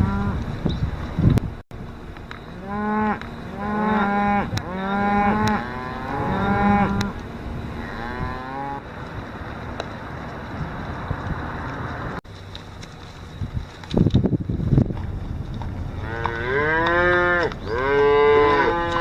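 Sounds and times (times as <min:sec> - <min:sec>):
cattle mooing: 0:00.0 - 0:00.4, 0:02.6 - 0:07.2, 0:07.8 - 0:08.8, 0:16.0 - 0:19.0.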